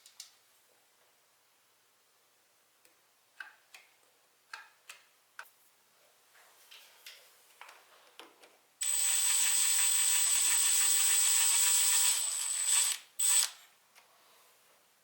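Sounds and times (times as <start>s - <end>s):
cordless power tool whining: 8.8s - 13.6s.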